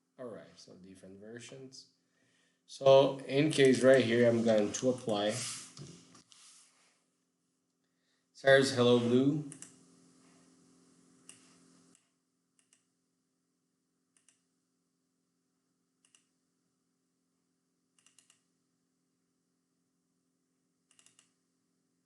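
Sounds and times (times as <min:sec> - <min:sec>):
faint steady hum: 0:07.8 - 0:13.0
computer keys clicking: 0:18.0 - 0:18.4, 0:20.9 - 0:21.4.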